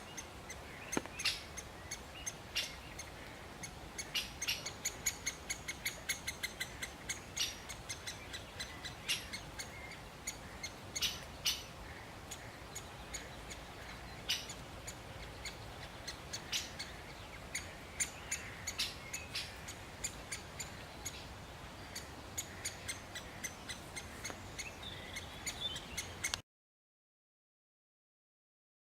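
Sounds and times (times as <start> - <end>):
woodpecker kik calls: 0.0 - 26.4.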